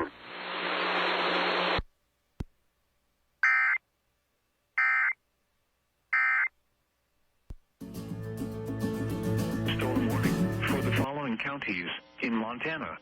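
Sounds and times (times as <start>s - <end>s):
radio static hiss: 0.0s - 1.8s, 9.7s - 13.0s.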